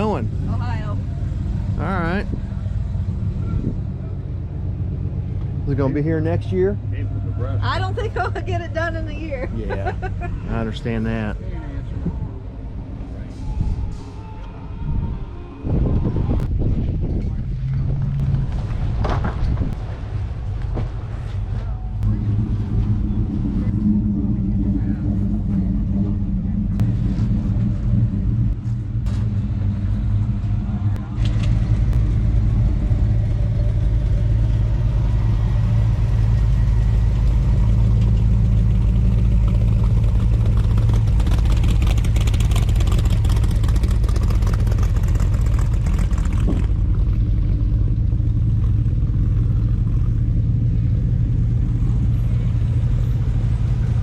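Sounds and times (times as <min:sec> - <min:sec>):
engine running steadily: 0:00.0 - 0:15.1, 0:15.7 - 0:54.0.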